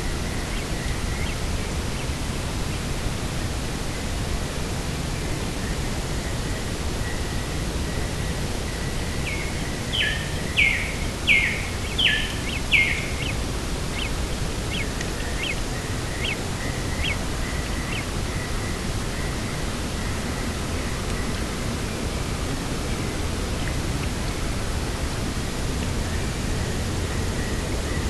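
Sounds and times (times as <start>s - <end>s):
wind noise: 0.0s - 28.0s
bird calling: 9.2s - 21.3s.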